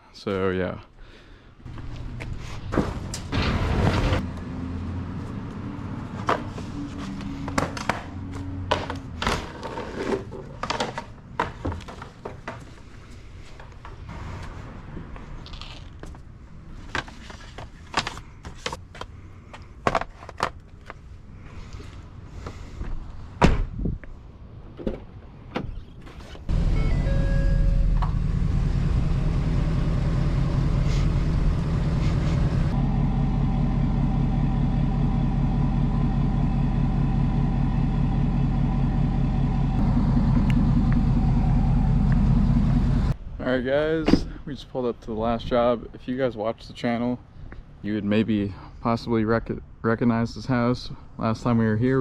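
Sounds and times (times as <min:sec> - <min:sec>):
truck engine running: 0:26.5 - 0:43.2.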